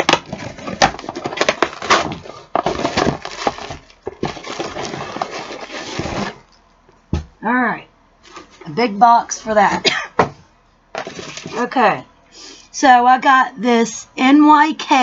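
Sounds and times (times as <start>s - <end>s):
cardboard box being torn open: 0.0s - 6.4s
packaging rustling and crackling: 0.0s - 6.6s, 11.0s - 11.7s.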